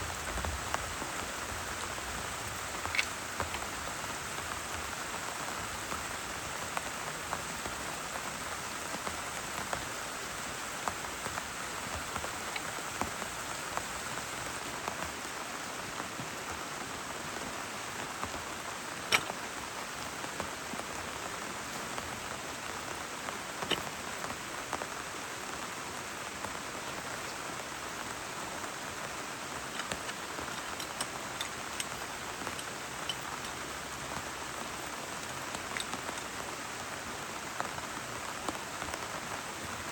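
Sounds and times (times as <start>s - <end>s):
steady rain falling: 0.0s - 39.9s
drops tapping: 29.6s - 36.3s.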